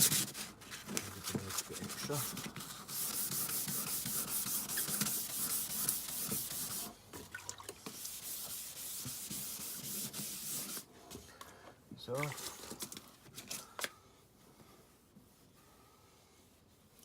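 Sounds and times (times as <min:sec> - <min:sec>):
sandpaper rasping strokes: 0:00.0 - 0:00.6, 0:01.4 - 0:06.9, 0:07.9 - 0:10.8.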